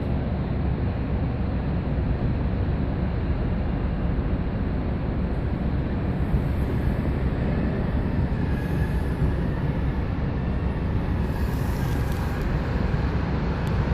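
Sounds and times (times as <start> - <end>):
ferry engines rumbling: 0.0 - 13.9.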